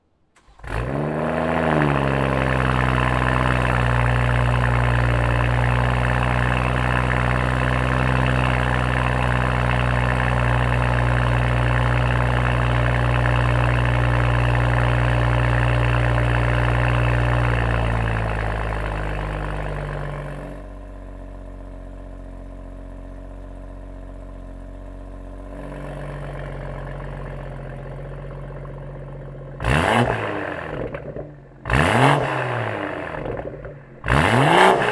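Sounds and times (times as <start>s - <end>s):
car engine starting and idling: 0.0s - 34.9s
engine revving: 0.4s - 20.6s, 29.6s - 34.9s.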